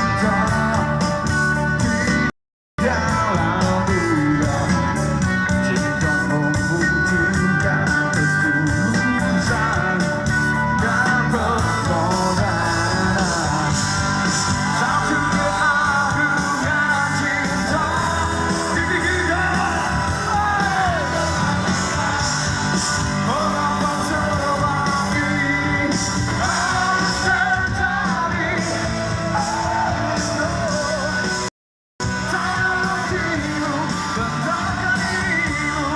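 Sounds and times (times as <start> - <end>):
lead singer singing: 0.0 - 35.9
live rock band playing: 0.0 - 35.9.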